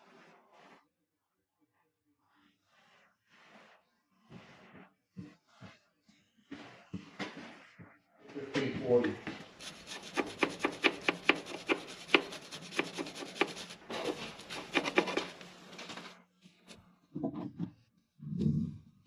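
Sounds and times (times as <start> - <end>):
rapid rasping strokes: 8.9 - 16.8.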